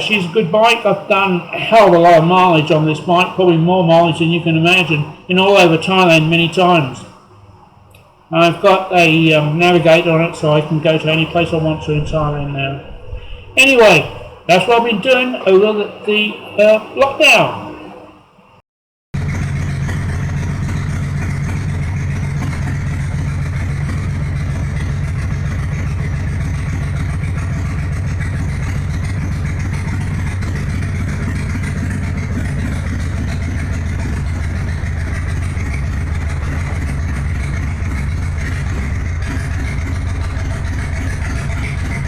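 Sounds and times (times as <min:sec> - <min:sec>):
motorcycle engine running: 0:08.5 - 0:15.2, 0:19.2 - 0:42.0.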